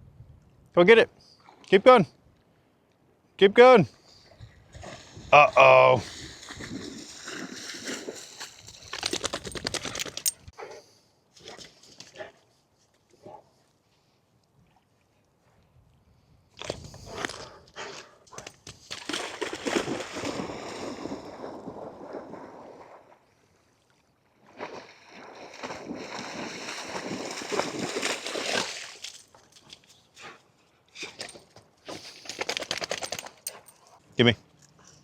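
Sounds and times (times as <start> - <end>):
dog splashing through water: 6.0 - 10.2, 18.4 - 23.2, 24.4 - 29.8.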